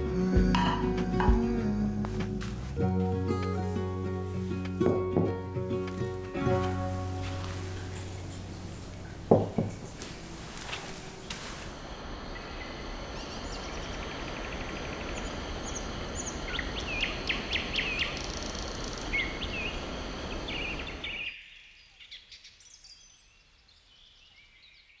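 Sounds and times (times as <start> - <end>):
steady background noise: 2.1 - 21.1
small birds chirping: 5.9 - 11.7.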